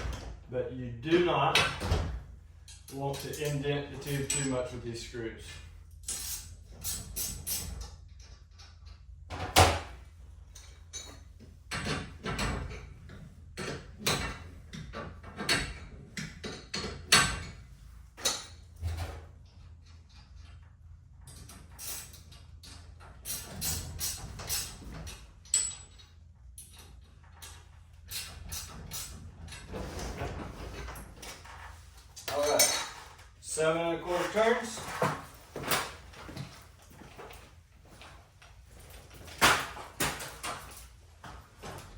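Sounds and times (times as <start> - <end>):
metal tools clanking: 2.6 - 5.0, 21.3 - 37.3.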